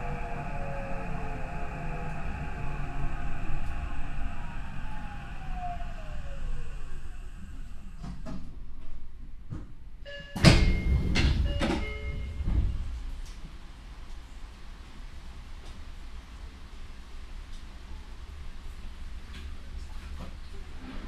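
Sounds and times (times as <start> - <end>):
train motor tone falling: 0.0 - 8.4
train doors opening with rush: 0.0 - 13.8.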